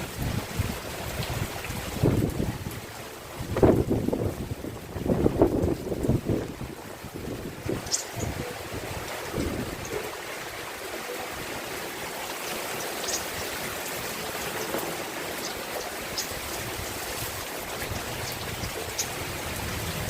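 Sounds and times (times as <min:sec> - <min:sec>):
steady rain hiss: 0:00.0 - 0:20.0
raindrops ticking: 0:07.7 - 0:08.4, 0:12.3 - 0:20.0.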